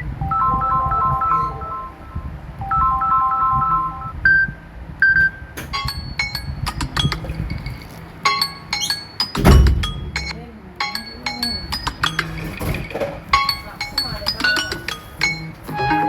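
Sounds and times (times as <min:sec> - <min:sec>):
three-note electronic ringtone: 0:00.0 - 0:04.5, 0:05.7 - 0:12.6, 0:13.3 - 0:16.0
short plinking chimes: 0:05.7 - 0:16.0.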